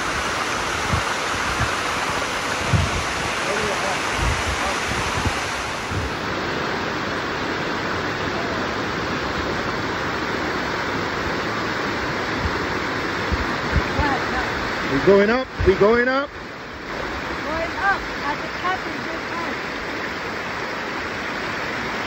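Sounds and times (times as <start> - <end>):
wind bumps on microphone: 0.0 - 6.2, 12.3 - 14.5
waterfall rushing: 0.0 - 22.0.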